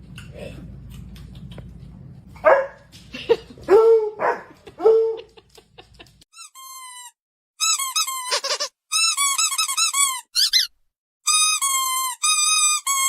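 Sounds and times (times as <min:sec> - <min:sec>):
rubber squeaky toy squeaks: 0:06.3 - 0:13.0.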